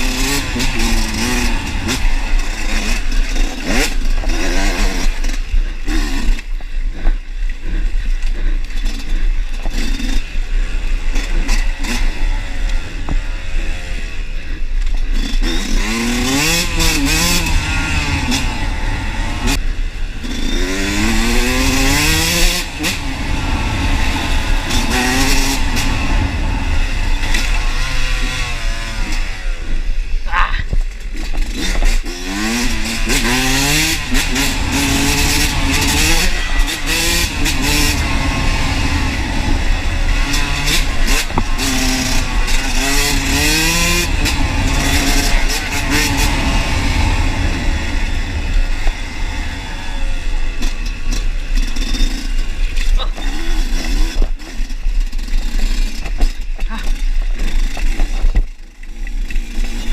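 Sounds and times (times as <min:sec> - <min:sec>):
clatter: 0:00.0 - 0:18.6, 0:30.6 - 0:59.9
wind noise: 0:00.0 - 0:58.6
motorcycle engine revving: 0:00.0 - 0:59.9.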